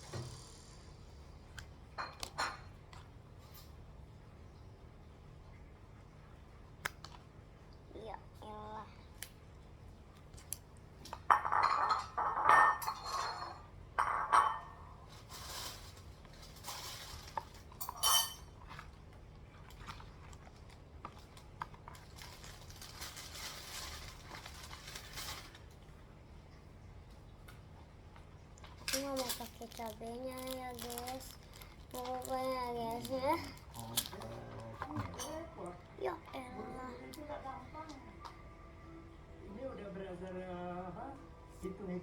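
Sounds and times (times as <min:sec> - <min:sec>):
cutlery clinking against dishes: 0:11.2 - 0:14.9, 0:17.5 - 0:18.6.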